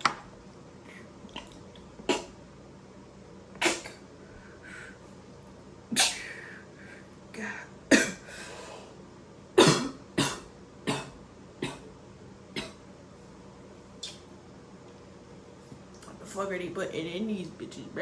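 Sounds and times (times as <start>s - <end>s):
man coughing harshly: 7.9s - 8.3s, 9.6s - 11.8s.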